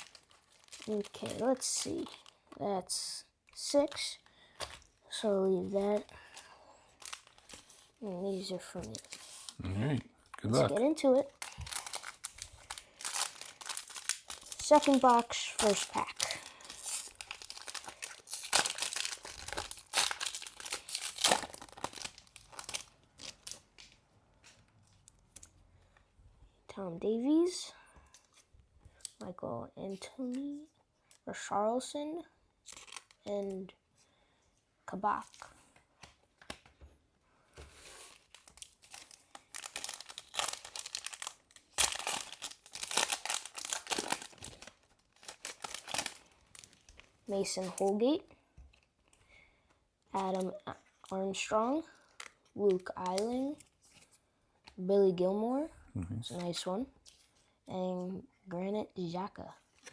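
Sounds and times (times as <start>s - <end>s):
foil wrapper tearing and crinkling: 0.0s - 2.6s, 7.0s - 9.6s, 10.8s - 24.0s, 32.6s - 33.3s, 37.8s - 48.0s, 52.2s - 53.7s.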